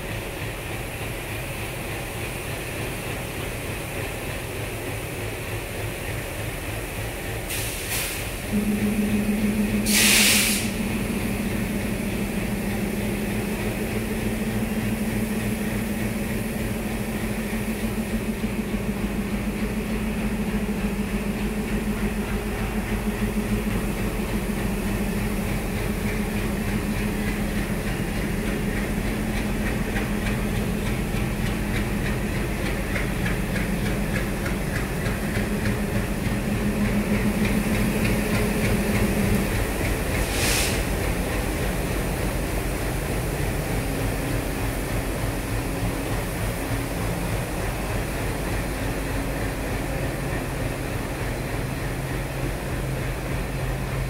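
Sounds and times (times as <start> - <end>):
train engine hum: 0.0 - 54.0
air release hiss: 7.5 - 8.4, 9.8 - 10.8, 40.2 - 41.0.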